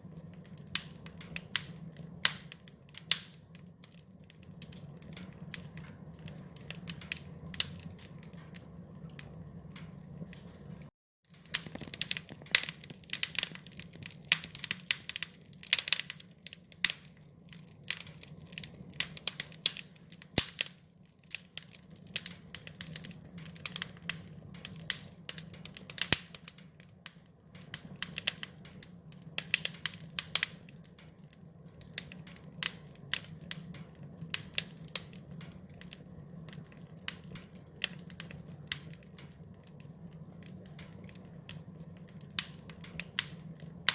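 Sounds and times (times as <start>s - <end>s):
fire crackling and popping: 0.0s - 43.9s.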